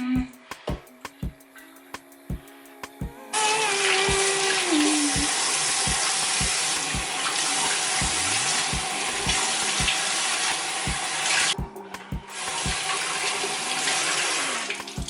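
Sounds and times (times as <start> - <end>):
music beat low thumps: 0.0 - 3.2, 4.1 - 4.4, 5.1 - 7.3, 7.9 - 10.1, 10.8 - 13.1
water running: 3.4 - 15.0.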